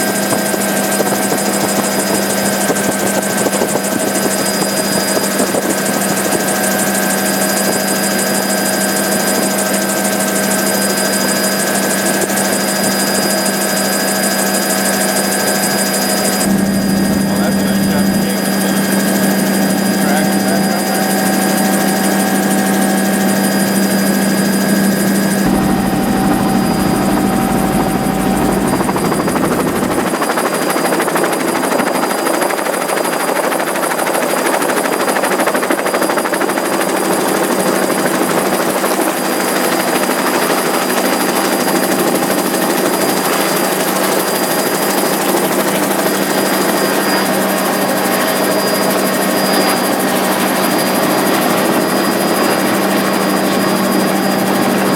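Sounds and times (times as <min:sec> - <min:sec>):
helicopter engine and rotor drone: 0:00.0 - 0:54.9.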